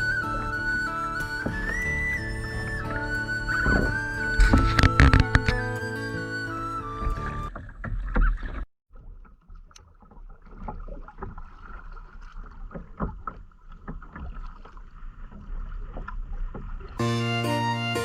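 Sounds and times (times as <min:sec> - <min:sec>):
paddle splashing in water: 0:00.0 - 0:17.0
keyboard tune: 0:17.0 - 0:18.0.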